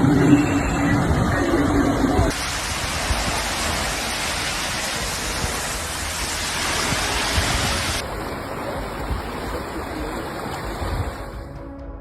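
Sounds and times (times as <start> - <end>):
floodwater rushing: 0.0 - 11.7.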